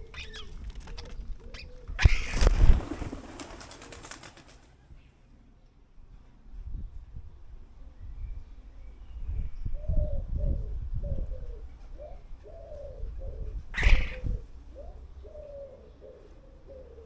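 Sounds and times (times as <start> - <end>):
birds calling: 0.0 - 5.2, 11.4 - 17.0.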